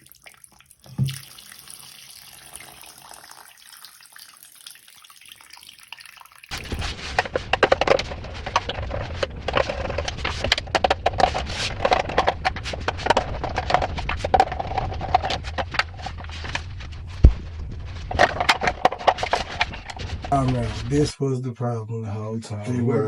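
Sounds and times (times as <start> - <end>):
handling clicks and crackles: 6.5 - 20.2.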